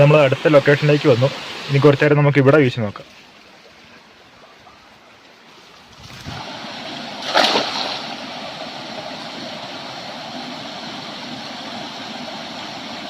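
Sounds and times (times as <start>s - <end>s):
stream water running: 0.0s - 13.0s
water splash: 5.7s - 9.6s.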